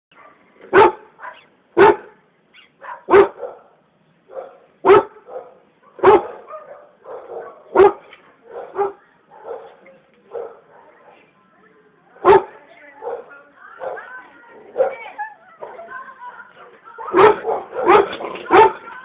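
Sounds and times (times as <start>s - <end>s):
dog barking: 0.1s - 2.2s, 2.8s - 11.2s, 12.2s - 14.1s, 14.7s - 15.1s, 17.1s - 18.9s.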